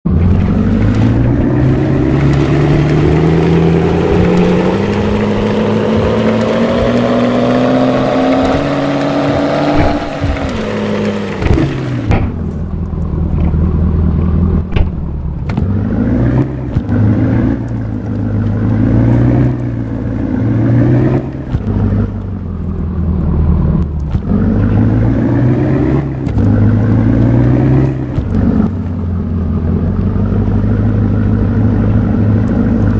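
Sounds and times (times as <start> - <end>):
truck engine revving and straining: 0.0 - 32.9
sharp knocks: 3.9 - 12.6.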